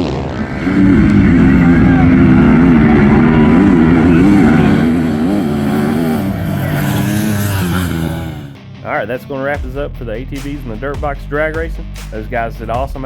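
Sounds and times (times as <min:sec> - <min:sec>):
dirt bike engines at full throttle: 0:00.0 - 0:08.6.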